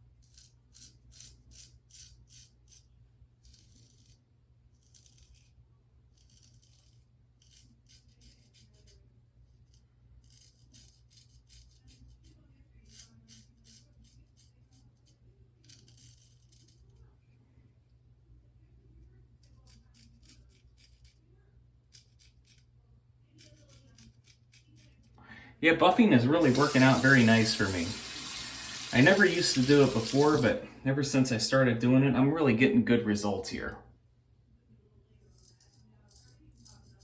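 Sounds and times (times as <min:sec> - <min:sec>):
straight razor scraping stubble: 0:00.2 - 0:08.9, 0:09.7 - 0:12.2, 0:12.9 - 0:17.0, 0:21.9 - 0:22.7.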